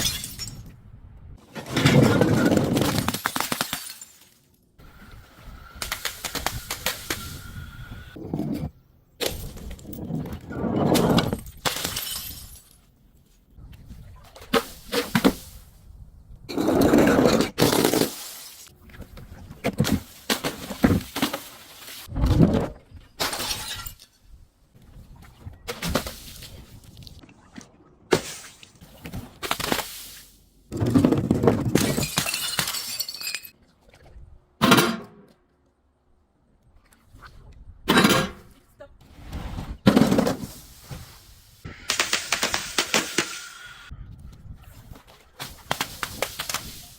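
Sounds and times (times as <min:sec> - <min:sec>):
glass shattering: 0:00.0 - 0:00.7, 0:03.0 - 0:04.4, 0:11.3 - 0:12.8, 0:23.2 - 0:24.2, 0:31.8 - 0:33.5.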